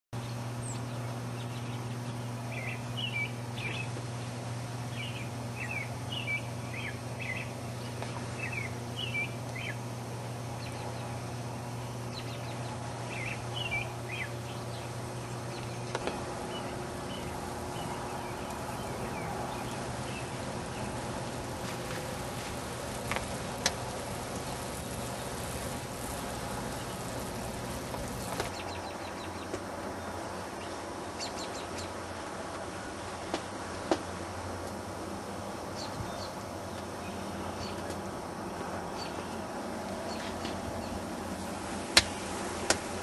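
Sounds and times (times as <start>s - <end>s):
songbird chirping: 0.2s - 9.9s, 10.6s - 32.0s
steady low hum: 0.2s - 43.0s
steady hiss: 0.3s - 43.0s.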